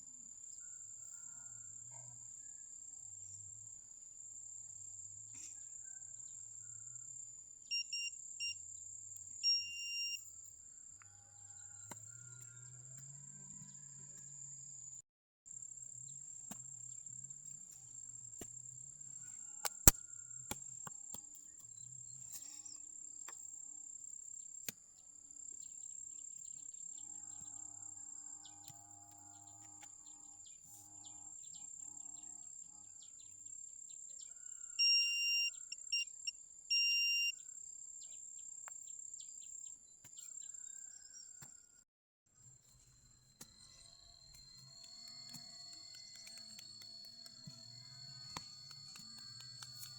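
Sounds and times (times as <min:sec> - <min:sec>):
metal detector beeping: 0:07.7 - 0:08.6, 0:09.4 - 0:10.3, 0:34.8 - 0:37.4, 0:43.3 - 0:49.9
night insects trilling: 0:43.4 - 0:49.9.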